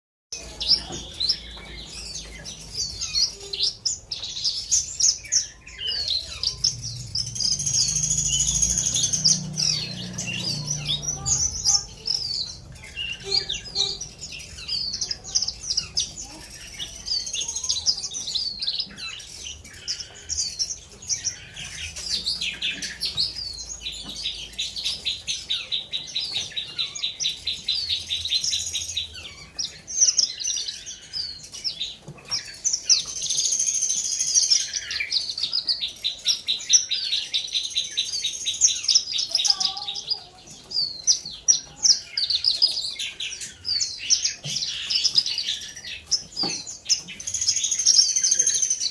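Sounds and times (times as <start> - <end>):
bird trill: 0.3 - 48.9
bird singing chirps and whistles: 0.4 - 39.1.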